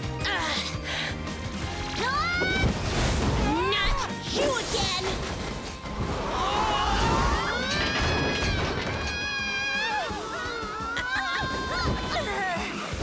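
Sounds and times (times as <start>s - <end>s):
background music: 0.0s - 13.0s
crash and impact effects: 2.4s - 9.7s.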